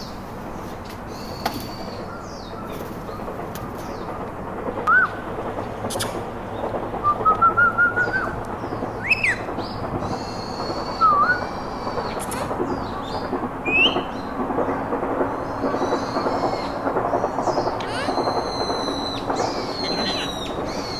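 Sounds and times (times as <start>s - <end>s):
parrot whistling and chirping: 11.0s - 11.4s.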